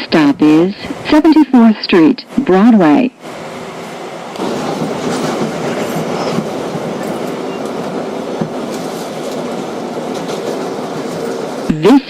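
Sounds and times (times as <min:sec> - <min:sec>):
subway car running rumble: 0:00.0 - 0:12.0
wheels clacking over rail joints: 0:04.4 - 0:11.6.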